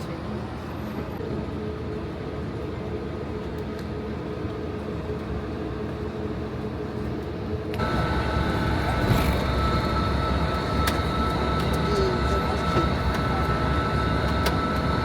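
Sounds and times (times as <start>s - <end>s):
high engine whine: 7.5s - 15.0s
vehicle engine rumble: 7.8s - 15.0s.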